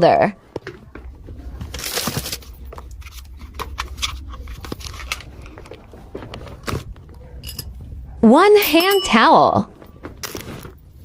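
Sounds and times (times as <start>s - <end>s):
steady low hum: 0.3s - 11.0s
crinkling wrap rustle: 0.7s - 7.2s.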